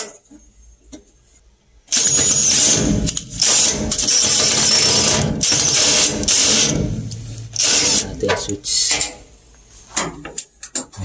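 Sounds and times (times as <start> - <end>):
power drill-driver running: 1.9 - 6.8, 7.5 - 8.0.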